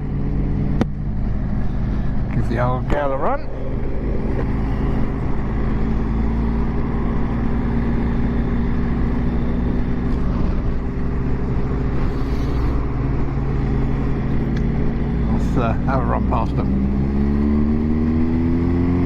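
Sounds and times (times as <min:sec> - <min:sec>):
motorcycle engine cruising: 0:00.0 - 0:19.0
wind noise rushing: 0:01.2 - 0:14.4.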